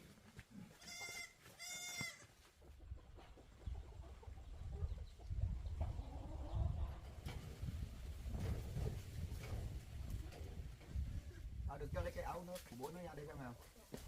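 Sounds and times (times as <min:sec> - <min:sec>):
goat bleating: 0:00.7 - 0:02.4.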